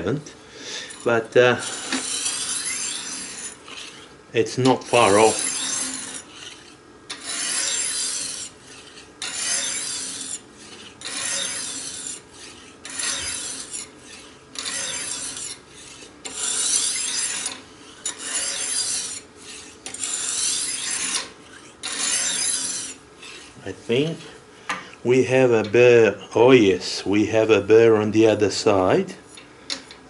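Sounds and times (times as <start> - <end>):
knife scraping on sharpening stone: 0.9 - 4.1, 4.7 - 23.6.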